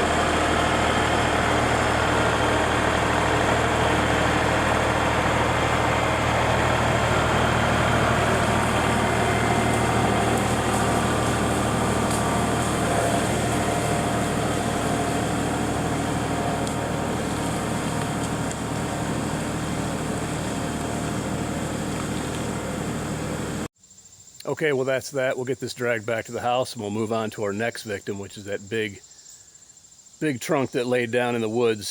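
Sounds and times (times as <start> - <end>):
diesel tractor engine running: 0.0 - 23.7.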